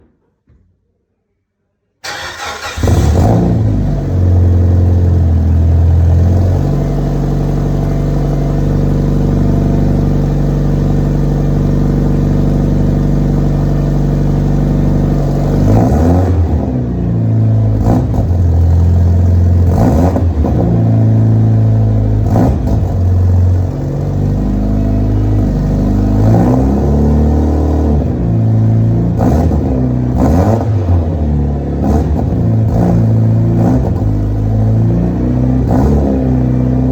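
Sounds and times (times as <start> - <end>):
car engine fast idle: 2.0 - 3.2
car engine starting: 2.0 - 36.9
engine throttle revs: 2.0 - 36.9.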